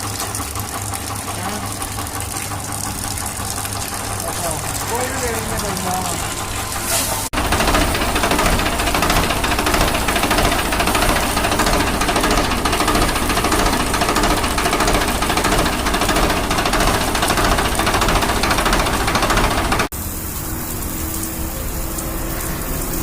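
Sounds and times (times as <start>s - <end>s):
machine knocking rapidly: 0.0s - 19.9s.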